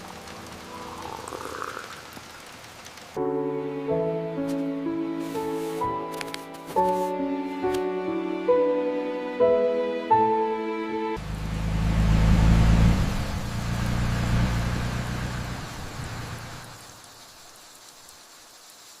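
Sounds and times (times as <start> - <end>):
vehicle engine rumbling: 11.2 - 16.9.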